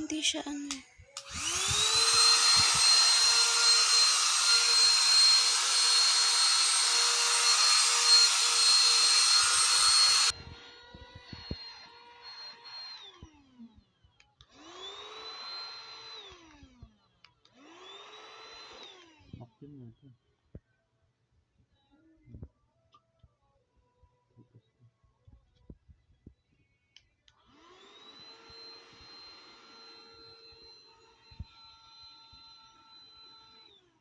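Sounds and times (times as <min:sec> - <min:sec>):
vacuum cleaner motor whine: 0:01.1 - 0:19.4, 0:27.4 - 0:34.0.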